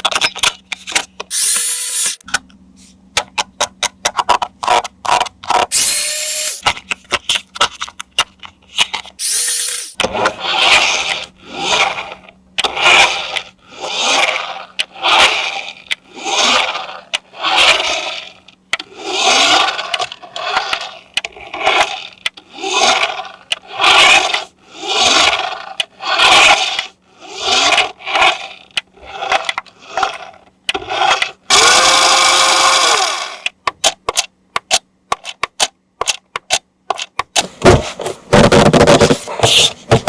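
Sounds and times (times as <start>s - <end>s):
rhythmic scraping strokes: 1.3s - 2.2s, 5.7s - 6.6s
steady whir: 1.3s - 2.3s, 5.7s - 6.7s, 9.2s - 33.6s.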